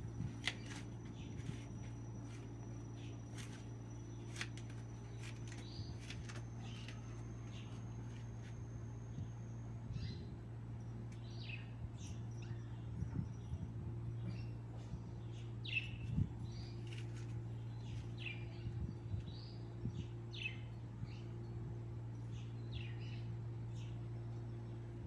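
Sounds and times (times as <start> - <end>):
small birds chirping: 0.0 - 25.0
steady low hum: 0.0 - 25.0.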